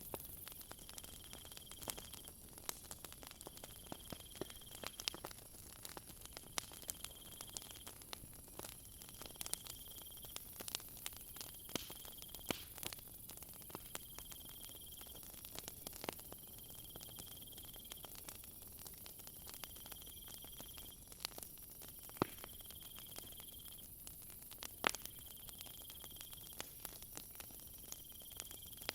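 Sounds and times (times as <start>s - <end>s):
wood fire crackling: 0.0s - 28.9s
cricket trilling: 6.7s - 8.0s, 22.4s - 24.0s.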